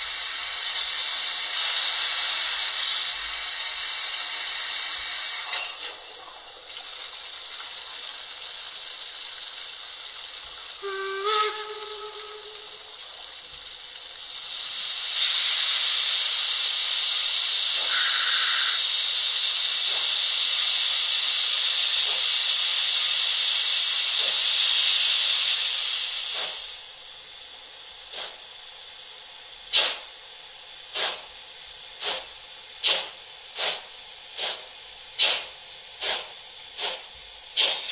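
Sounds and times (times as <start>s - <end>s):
steam hiss from loudspeaker: 0.0s - 6.0s, 7.9s - 13.4s, 14.1s - 26.9s, 30.9s - 31.4s, 32.0s - 37.9s
steam whistle blast: 10.8s - 13.0s, 17.8s - 18.8s.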